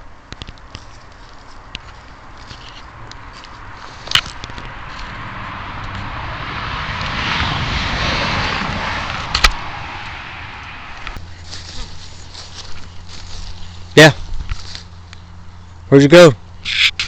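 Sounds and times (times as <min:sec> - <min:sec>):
distant engine passing by: 0:02.3 - 0:16.7.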